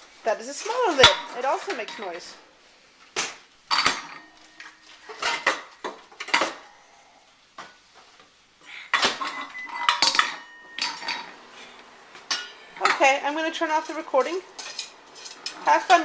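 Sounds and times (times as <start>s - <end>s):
metal pots and lids clanking: 0.6s - 2.3s, 3.7s - 6.6s, 8.9s - 11.4s, 12.3s - 16.0s
lids hitting a tile floor: 3.2s - 6.6s, 8.9s - 11.4s, 12.2s - 16.0s.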